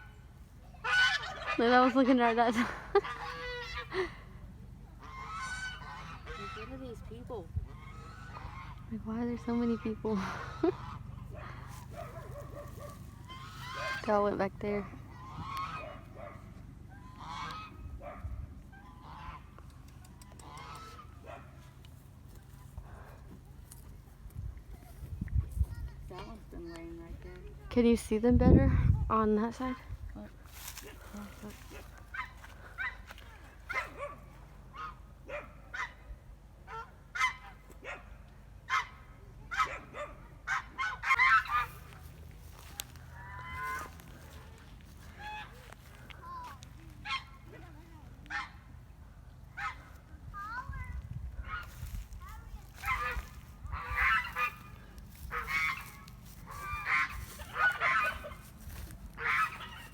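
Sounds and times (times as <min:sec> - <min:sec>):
fowl calling: 0:00.0 - 0:04.3, 0:05.0 - 0:17.9, 0:18.7 - 0:19.6, 0:20.3 - 0:23.2, 0:29.6 - 0:35.1, 0:40.5 - 0:47.6, 0:51.4 - 0:59.9
birds honking: 0:00.0 - 0:19.6, 0:20.4 - 0:23.3, 0:29.2 - 0:35.3, 0:40.5 - 0:47.7, 0:51.4 - 0:59.9.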